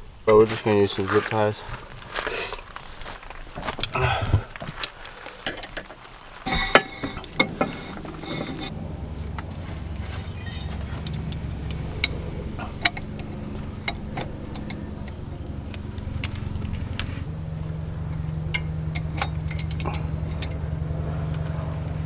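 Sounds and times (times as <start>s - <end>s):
steady low hum: 0.0s - 22.0s
metallic clinks of tools: 0.3s - 1.3s, 10.0s - 11.2s.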